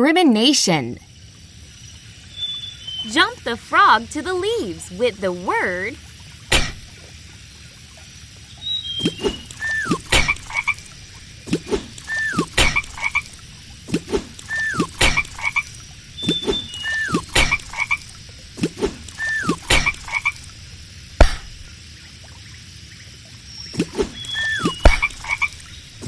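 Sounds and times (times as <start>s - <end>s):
short falling whistle: 8.6s - 10.4s, 12.0s - 12.8s, 14.5s - 14.9s, 19.2s - 20.0s, 24.1s - 25.3s
cartoon frog croaking: 9.6s - 10.9s, 12.0s - 13.4s, 14.4s - 15.8s, 16.4s - 18.2s, 19.1s - 20.5s, 24.4s - 25.6s.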